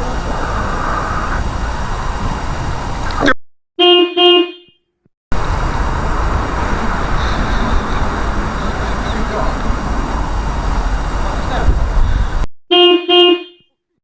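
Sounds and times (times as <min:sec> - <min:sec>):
outdoor rumble and hiss: 0:00.0 - 0:03.2, 0:05.3 - 0:12.4
horn short beeps: 0:03.8 - 0:04.8, 0:12.7 - 0:13.7.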